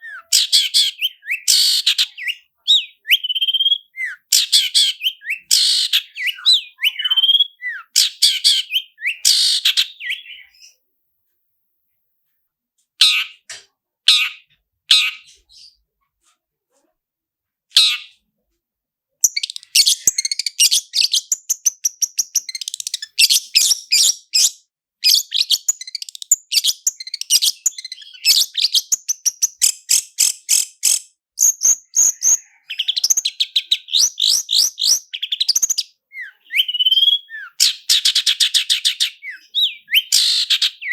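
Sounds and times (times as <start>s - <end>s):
shrike singing rapid trill: 0.0s - 10.5s, 25.1s - 40.9s.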